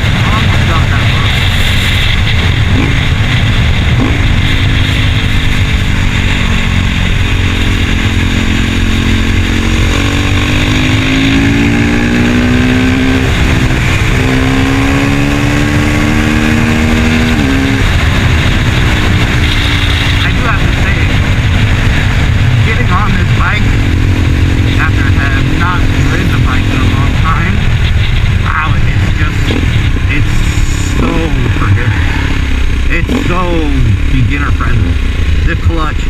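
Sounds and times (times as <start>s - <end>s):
wind rumble on microphone: 0.0s - 33.2s
motorcycle engine revving: 0.0s - 36.0s.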